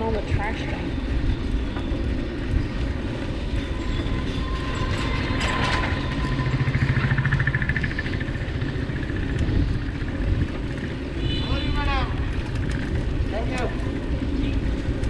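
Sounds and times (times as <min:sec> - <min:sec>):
low rumble of road noise: 0:00.0 - 0:15.0
vehicle engine passing: 0:03.0 - 0:11.1.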